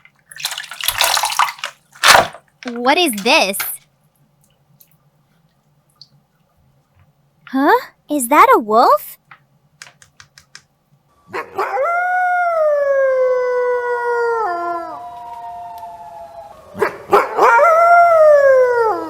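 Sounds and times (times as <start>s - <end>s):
wolf howling: 11.3s - 19.0s.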